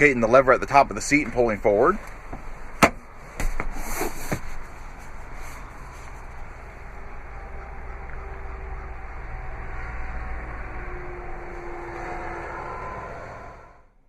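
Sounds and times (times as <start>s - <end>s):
low steady rumble: 0.0s - 14.0s
seat rustling and knocking: 2.0s - 5.6s.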